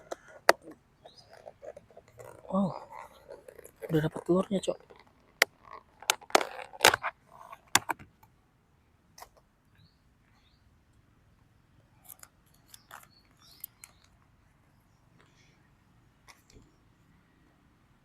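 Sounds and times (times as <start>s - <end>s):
objects clicking and knocking: 0.0s - 8.1s.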